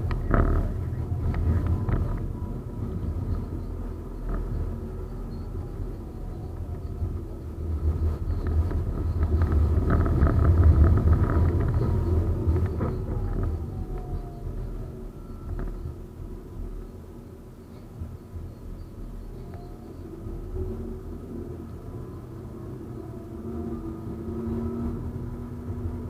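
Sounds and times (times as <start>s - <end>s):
tram rumbling along track: 0.0s - 26.0s.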